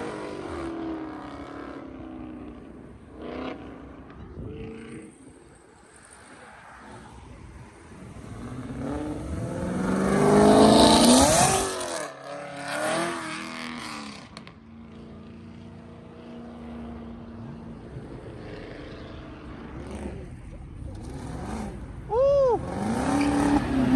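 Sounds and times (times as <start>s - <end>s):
car engine revving: 7.9s - 14.6s, 16.5s - 23.9s.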